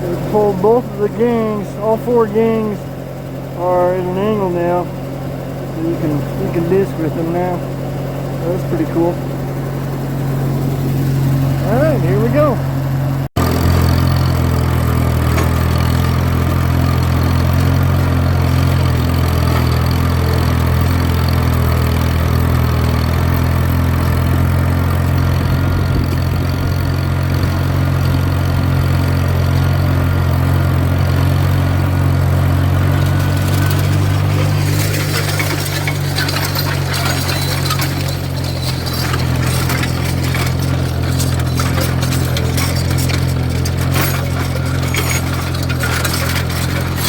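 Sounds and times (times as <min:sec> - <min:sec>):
tractor engine running: 0:00.0 - 0:47.0
harrow rattle and hiss: 0:32.7 - 0:47.0.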